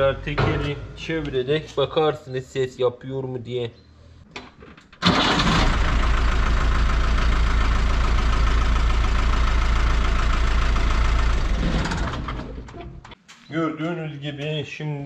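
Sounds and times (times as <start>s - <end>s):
van engine starting and idling: 5.0s - 13.2s.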